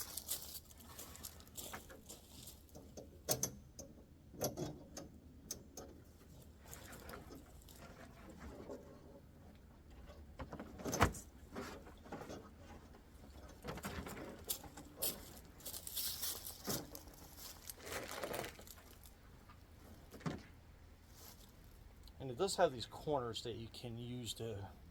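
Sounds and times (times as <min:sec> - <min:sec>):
cargo net rustling: 0:00.0 - 0:02.7, 0:13.4 - 0:19.2.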